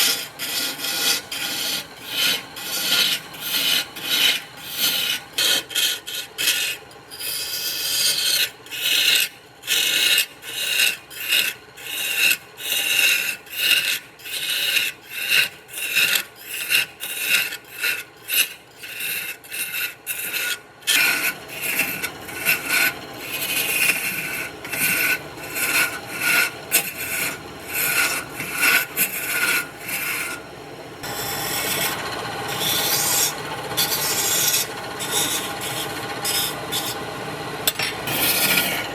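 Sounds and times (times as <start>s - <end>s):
sanding wood by hand: 0.0s - 6.7s.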